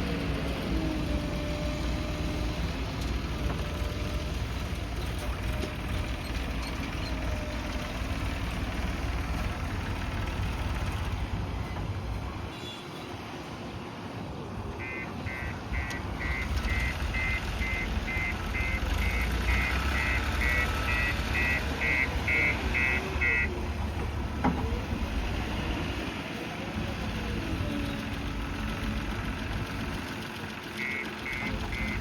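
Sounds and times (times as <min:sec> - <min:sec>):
diesel engine running: 0:00.0 - 0:12.5, 0:14.5 - 0:32.0
reversing alarm beeping: 0:14.8 - 0:23.5, 0:30.8 - 0:32.0.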